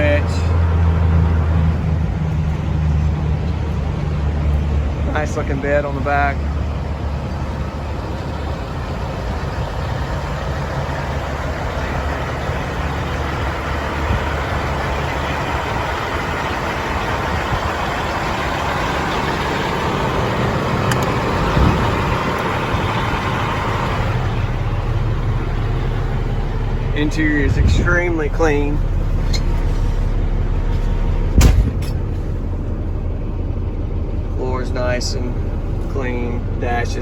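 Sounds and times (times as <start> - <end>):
diesel truck engine idling: 0.0 - 37.0
thump: 31.3 - 32.0.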